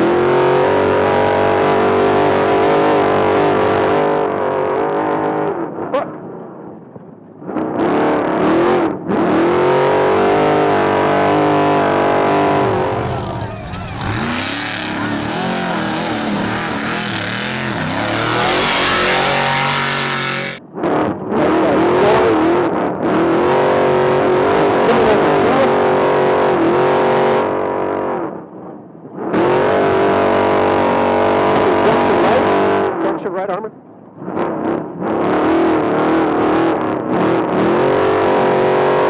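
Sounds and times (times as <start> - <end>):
truck engine revving: 12.0 - 20.6
loud rush of noise: 12.1 - 20.6.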